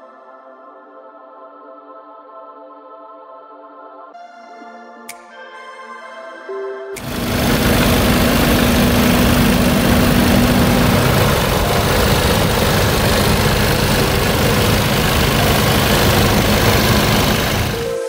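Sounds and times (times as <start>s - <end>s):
car engine idling: 7.0s - 18.0s.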